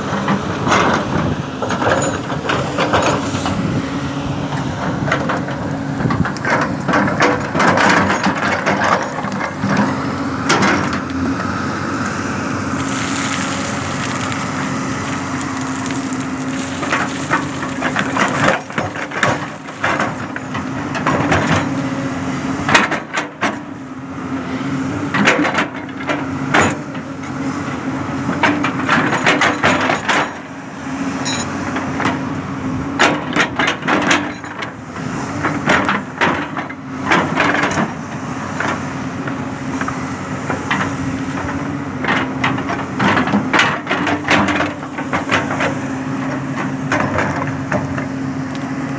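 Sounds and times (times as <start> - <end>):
diesel engine running under load: 0.0 - 48.9
bucket clanking on earth and stone: 4.6 - 11.3, 12.7 - 22.0, 28.3 - 30.5, 40.7 - 48.9.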